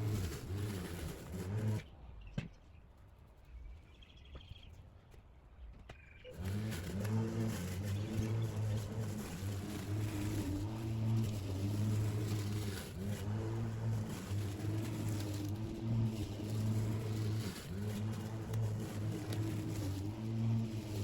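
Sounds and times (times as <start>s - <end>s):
lawn mower cutting grass: 0.0s - 1.9s, 6.3s - 21.0s.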